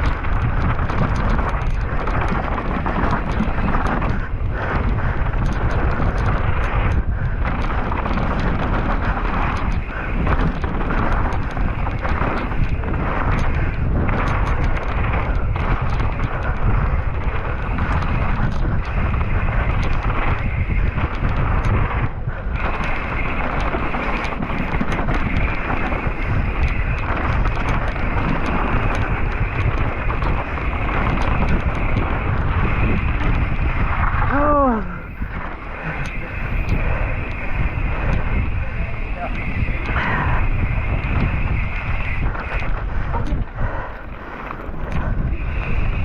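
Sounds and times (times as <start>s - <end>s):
scattered clicks and knocks: 0.0s - 46.0s
wind buffeting microphone: 0.0s - 46.0s.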